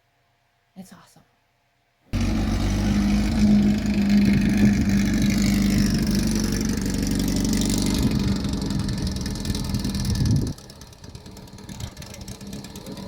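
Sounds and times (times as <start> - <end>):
engine running steadily: 2.2 - 13.0.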